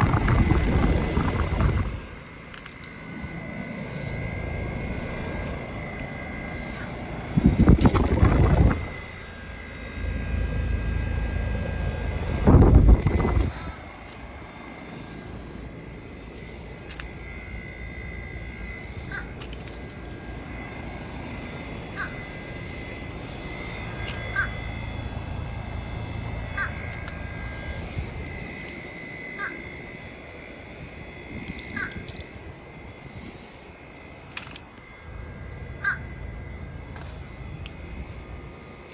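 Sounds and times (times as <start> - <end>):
heat pump humming and whining: 0.0 - 38.9
bird calling: 19.0 - 19.5, 21.9 - 22.8, 23.8 - 24.7, 26.5 - 27.1, 29.4 - 29.7, 31.7 - 32.2, 35.8 - 36.2.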